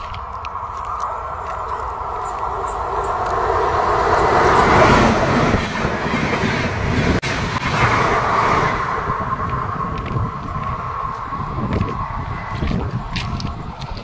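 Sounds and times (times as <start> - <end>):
train passing on rails: 0.0 - 14.0.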